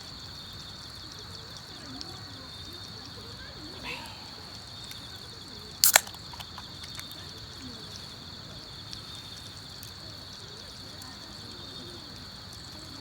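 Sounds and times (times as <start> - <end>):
insects chirring: 0.0 - 13.0
sharp double click: 5.8 - 7.0.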